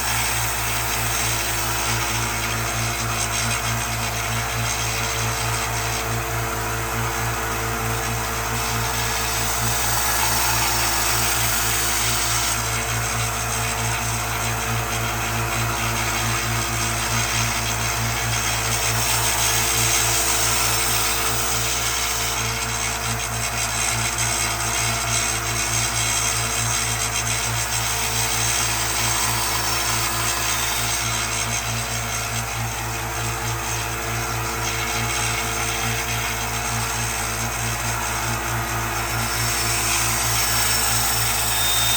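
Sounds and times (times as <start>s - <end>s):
electric grinder grinding steel: 0.0s - 41.9s.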